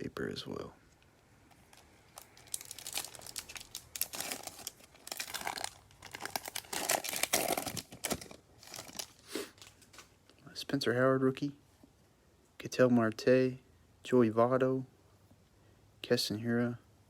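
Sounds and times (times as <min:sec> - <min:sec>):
card pack wrapper tearing: 0:01.7 - 0:10.0.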